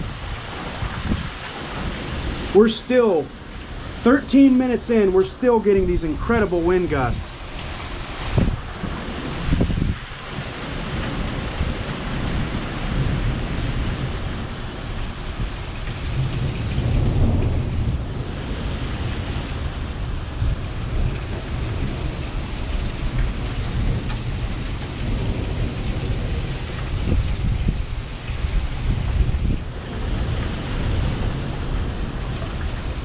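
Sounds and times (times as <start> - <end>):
rain falling: 0.0 - 33.0
wind gusts buffeting microphone: 0.0 - 33.0.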